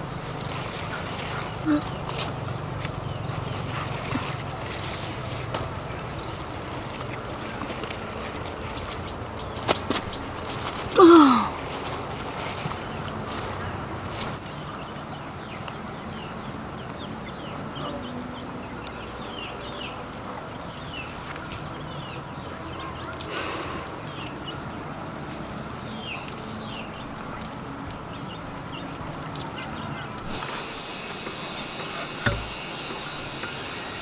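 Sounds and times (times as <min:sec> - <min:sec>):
insects droning: 0:00.0 - 0:34.0.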